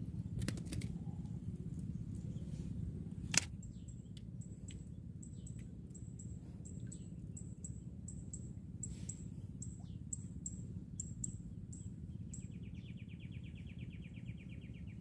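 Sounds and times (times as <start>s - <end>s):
steady low rumble: 0.0s - 15.0s
small bird chirping: 3.5s - 15.0s.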